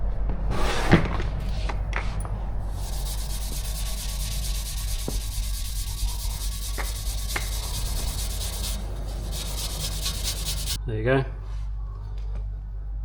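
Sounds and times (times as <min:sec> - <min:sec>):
pad scrubbing metal pipe: 0:02.7 - 0:10.8.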